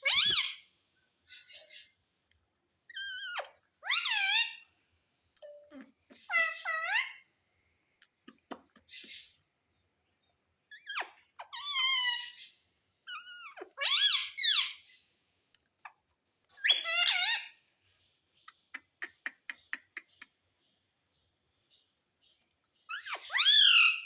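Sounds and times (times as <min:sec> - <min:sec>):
parrot warbling calls: 0:00.0 - 0:00.6, 0:02.9 - 0:04.6, 0:05.7 - 0:07.2, 0:10.8 - 0:12.4, 0:16.6 - 0:17.6, 0:22.9 - 0:24.0.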